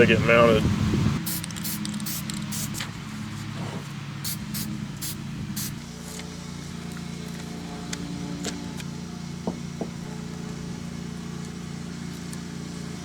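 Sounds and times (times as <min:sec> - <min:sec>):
steady low hum: 0:00.0 - 0:13.0
spray can hissing puffs: 0:01.2 - 0:02.9, 0:03.6 - 0:06.2.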